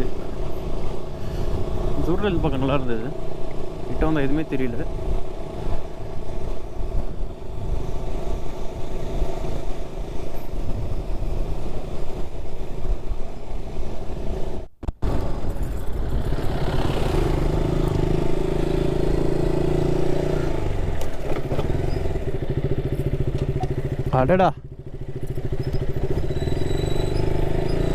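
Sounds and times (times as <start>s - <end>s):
motorcycle engine running: 14.9s - 27.9s.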